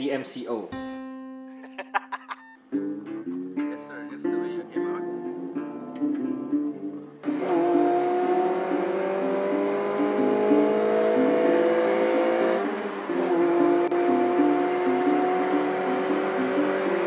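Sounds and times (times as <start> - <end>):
car engine accelerating: 5.4 - 17.0.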